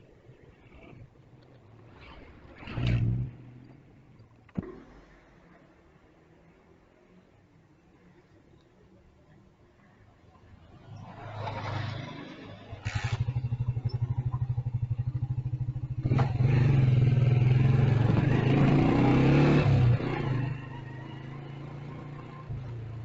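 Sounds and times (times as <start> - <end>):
motorcycle engine running: 12.8 - 20.3.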